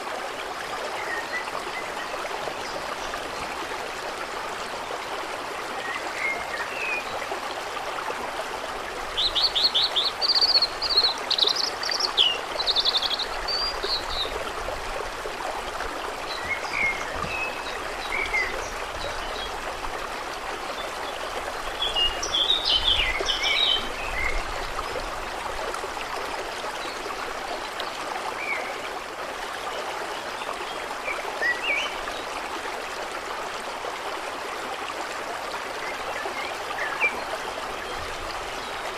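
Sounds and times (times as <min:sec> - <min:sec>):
trickling water: 0:00.0 - 0:38.9
songbirds singing: 0:09.1 - 0:14.5, 0:16.2 - 0:19.6, 0:20.8 - 0:24.7.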